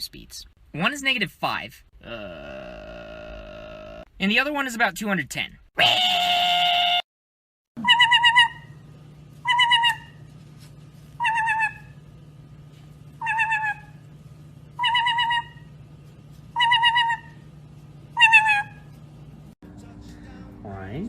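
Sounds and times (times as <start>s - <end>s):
parrot wavering call: 7.8s - 8.8s, 9.4s - 10.2s, 11.2s - 12.0s, 13.2s - 14.0s, 14.8s - 15.7s, 16.6s - 17.4s, 18.2s - 18.9s
steady low hum: 7.8s - 21.0s.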